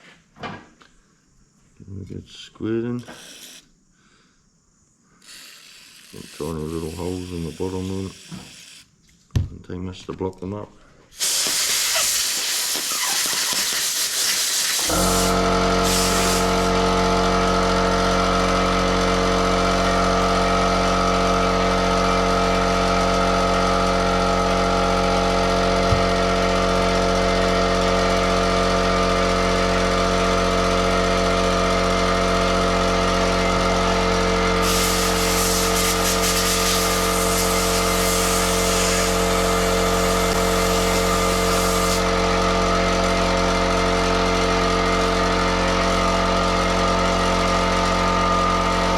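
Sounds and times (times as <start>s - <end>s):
air compressor motor running: 2.8s - 3.8s, 5.1s - 9.1s, 11.1s - 48.9s
compressed air blow gun hissing: 3.0s - 3.7s, 5.2s - 8.9s, 11.1s - 16.8s, 34.6s - 42.1s.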